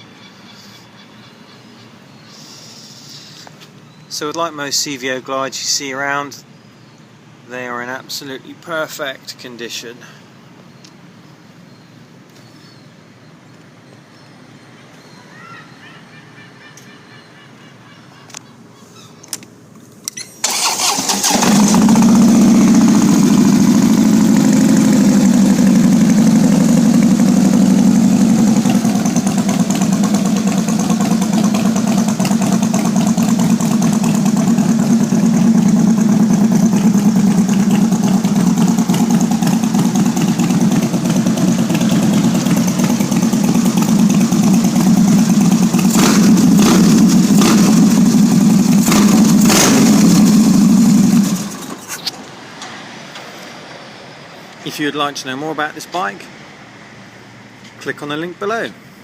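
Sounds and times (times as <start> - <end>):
motorcycle engine cranking: 20.1 - 52.1
motorcycle engine idling: 20.6 - 51.7.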